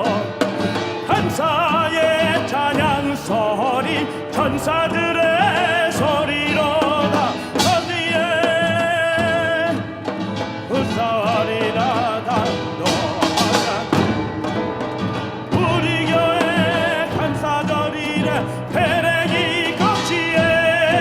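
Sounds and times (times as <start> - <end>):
solo voice singing with vibrato: 0.0 - 9.9, 15.5 - 21.0
instrumental accompaniment: 0.0 - 21.0.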